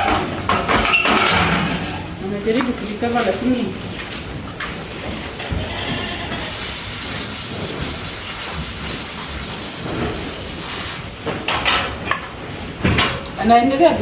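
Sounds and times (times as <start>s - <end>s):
loud steady hiss: 6.4s - 11.2s.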